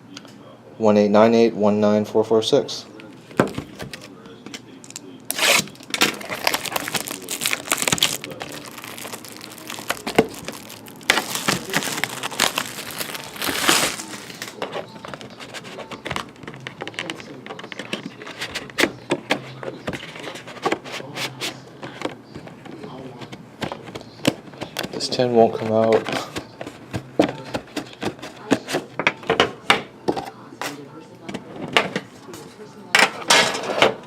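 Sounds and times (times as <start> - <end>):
shrink-wrap tearing and crinkling: 4.9 - 14.6.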